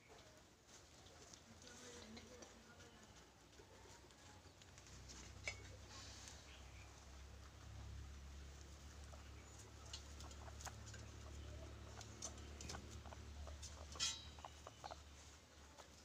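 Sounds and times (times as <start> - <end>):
guinea pigs clicking and pattering: 0.0 - 16.0.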